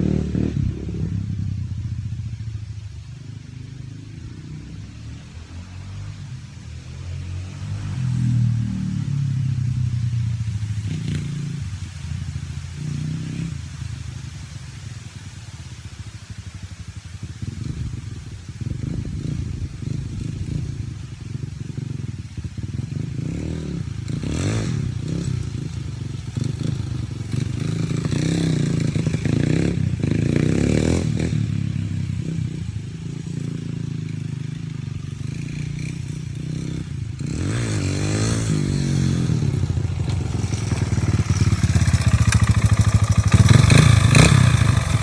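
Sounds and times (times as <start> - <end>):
dirt bike engine revving: 0.0 - 1.3, 21.4 - 45.0.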